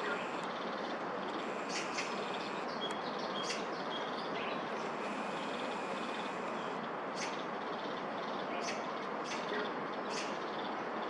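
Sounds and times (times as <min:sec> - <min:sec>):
bird calls: 0:00.0 - 0:07.9
distant city traffic hum: 0:00.0 - 0:11.0.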